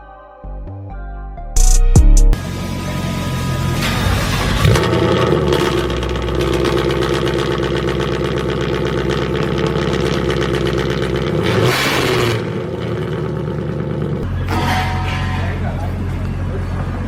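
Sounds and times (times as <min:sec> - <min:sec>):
loud car engine running: 0:02.4 - 0:17.0.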